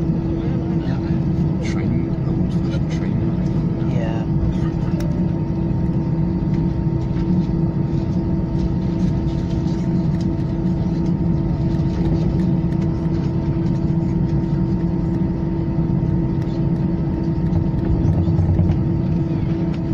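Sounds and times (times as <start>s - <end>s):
aircraft engines droning: 0.0s - 19.9s.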